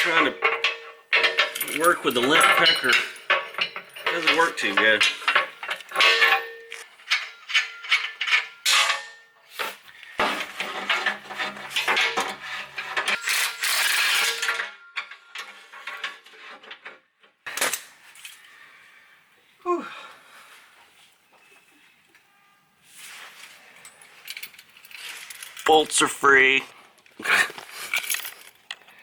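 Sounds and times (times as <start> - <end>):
hand tools clinking on metal: 0.0 - 16.8, 23.4 - 26.6, 27.2 - 29.0.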